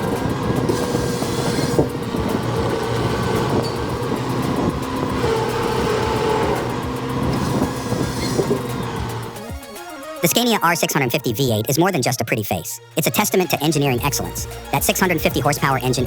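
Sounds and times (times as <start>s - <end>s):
metal clanking and rattling: 0.0s - 9.6s
diesel engine drone: 0.0s - 16.0s.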